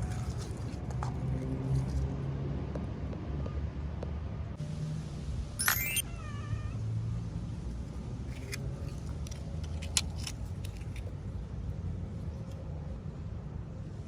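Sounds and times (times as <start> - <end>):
wavering meow-like call: 5.8 - 6.9.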